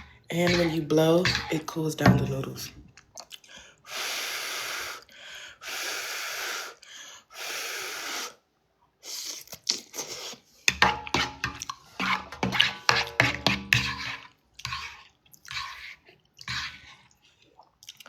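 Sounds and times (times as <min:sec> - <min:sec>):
person blowing on food: 0:07.4 - 0:08.4.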